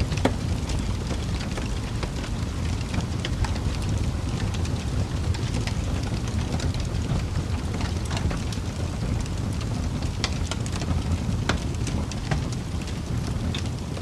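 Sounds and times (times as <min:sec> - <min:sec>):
fire pops and snaps: 0:00.0 - 0:14.0
low rumble of burning logs: 0:00.0 - 0:14.0.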